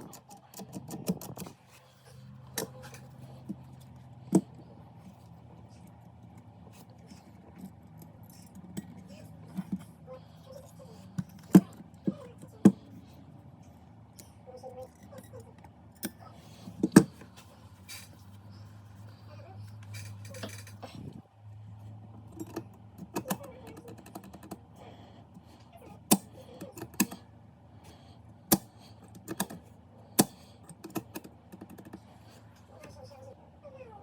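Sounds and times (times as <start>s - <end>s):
steady low hum: 0.0s - 34.0s
computer keyboard keys clicking: 22.4s - 24.6s.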